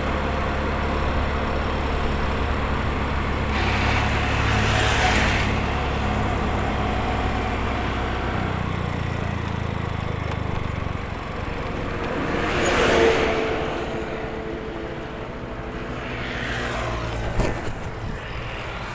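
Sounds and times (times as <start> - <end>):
vehicle passing by: 0.9 - 9.0, 11.1 - 18.9
motorcycle engine running: 5.6 - 15.8.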